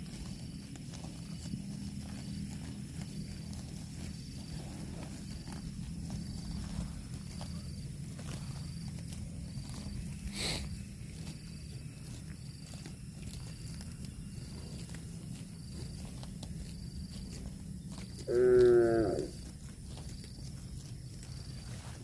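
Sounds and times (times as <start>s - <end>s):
cow mooing: 18.2s - 19.4s.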